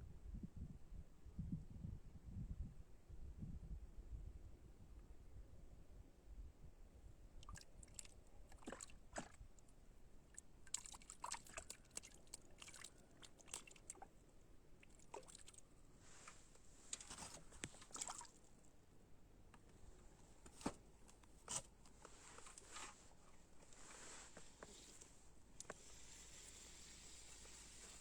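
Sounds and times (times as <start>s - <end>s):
water sloshing: 7.4s - 9.7s, 10.3s - 14.2s, 14.8s - 15.7s, 16.9s - 18.7s.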